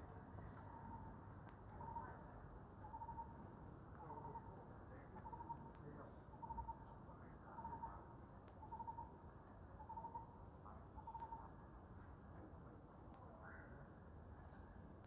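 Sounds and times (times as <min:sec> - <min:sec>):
faint bird calling: 0:00.6 - 0:02.2, 0:02.8 - 0:03.4, 0:04.0 - 0:06.9, 0:07.5 - 0:09.2, 0:09.8 - 0:11.6.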